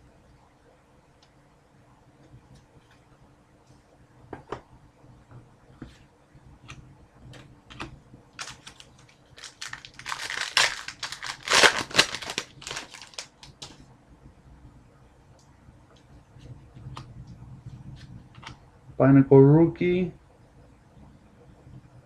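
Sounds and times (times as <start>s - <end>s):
card pack wrapper crinkling tearing: 8.4s - 13.8s.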